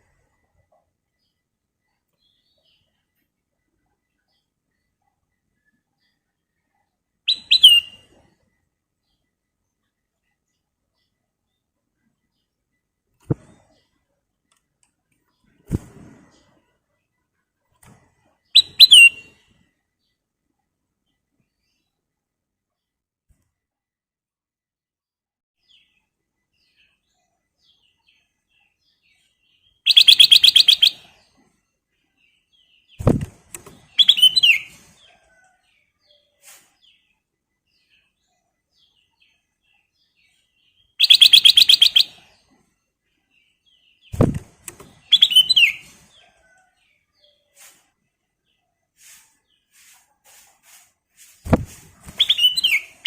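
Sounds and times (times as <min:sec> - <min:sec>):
falling whistled bird notes: 0:07.3 - 0:08.0, 0:18.6 - 0:19.3, 0:34.0 - 0:34.7
short low thump: 0:33.0 - 0:33.7, 0:44.2 - 0:44.5, 0:51.5 - 0:51.8.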